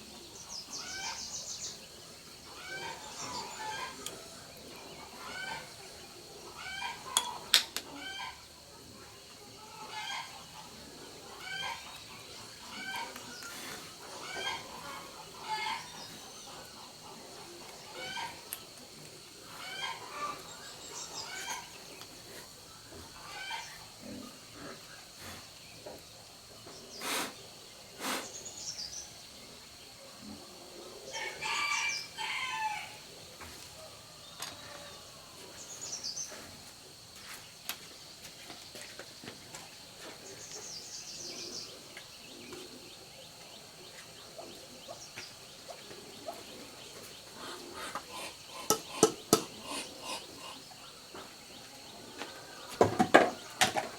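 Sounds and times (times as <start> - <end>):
chickens calling: 0.0 - 26.0, 30.0 - 35.6, 38.8 - 53.9
rooster crowing: 31.1 - 33.0.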